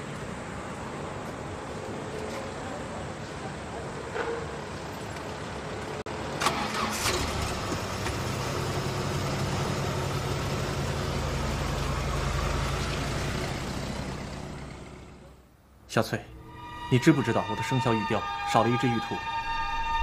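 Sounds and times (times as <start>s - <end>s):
car engine starting: 6.1s - 15.5s
car engine passing by: 6.4s - 15.4s.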